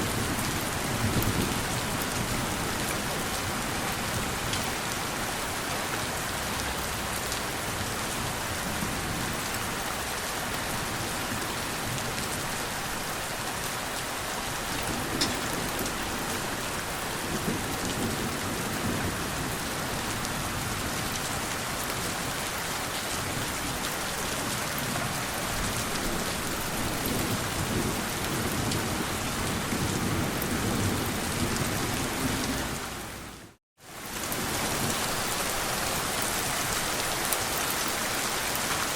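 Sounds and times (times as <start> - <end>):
steady rain falling: 0.0 - 38.9
low rolling thunder: 24.8 - 33.0.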